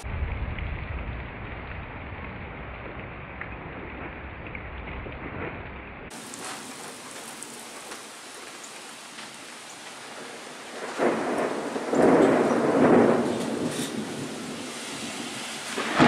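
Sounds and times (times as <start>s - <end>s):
thunder peal: 0.0s - 6.7s, 10.7s - 16.0s
rain falling: 0.0s - 16.0s.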